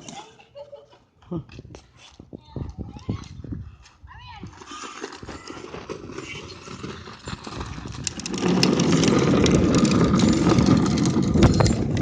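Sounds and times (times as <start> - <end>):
small engine running: 6.9 - 12.0.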